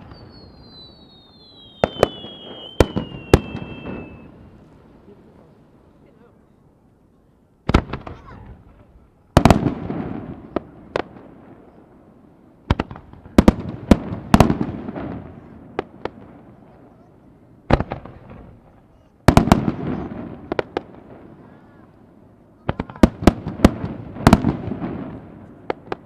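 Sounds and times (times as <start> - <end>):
fireworks crackle: 0.0 - 6.0
fireworks bangs: 0.0 - 6.1, 7.7 - 26.0.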